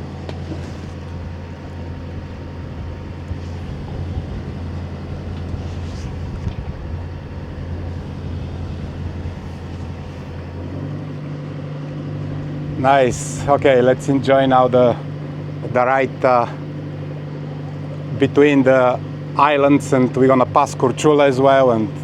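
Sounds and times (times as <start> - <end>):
boat engine humming: 0.0 - 22.0
water: 0.0 - 22.0
wind noise: 0.7 - 11.1.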